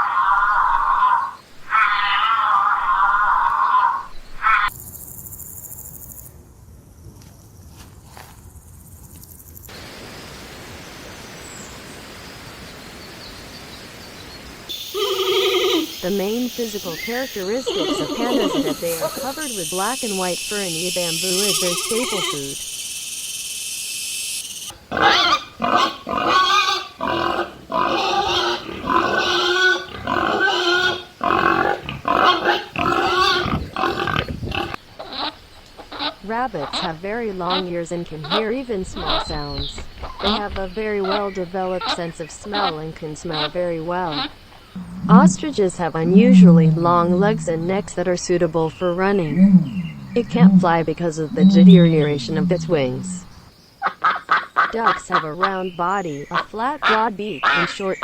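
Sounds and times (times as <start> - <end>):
insects chirping rhythmically: 4.6 - 7.7, 8.4 - 58.0
giant panda calling: 14.7 - 22.6, 44.8 - 47.9, 49.2 - 53.3.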